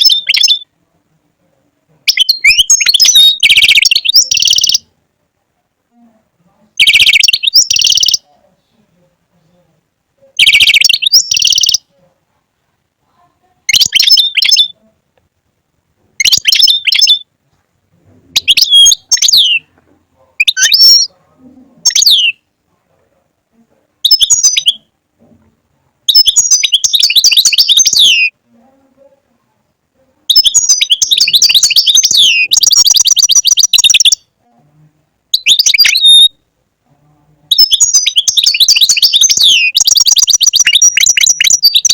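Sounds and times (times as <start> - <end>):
goldfinch twittering song: 6.8 - 8.2, 30.3 - 34.2, 35.4 - 36.3, 37.5 - 41.9.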